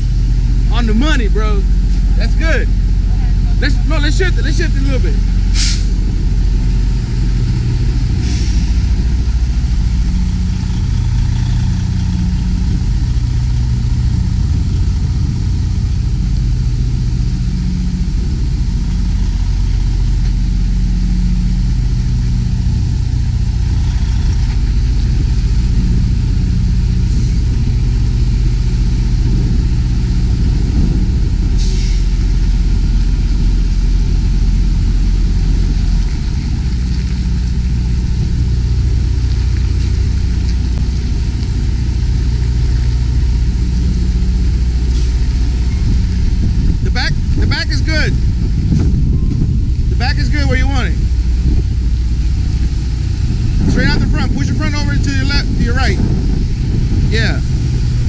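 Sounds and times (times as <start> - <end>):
diesel truck engine idling: 0.0 - 58.0
short air hisses: 5.5 - 6.0, 8.2 - 9.0, 31.6 - 32.2.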